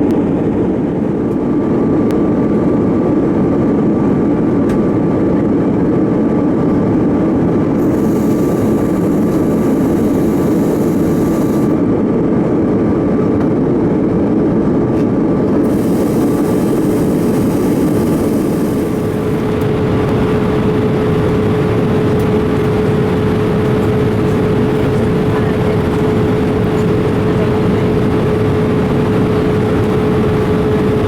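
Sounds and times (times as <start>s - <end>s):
airplane cabin roar: 0.0s - 31.0s
faint steady whine: 7.4s - 12.9s, 15.4s - 31.0s.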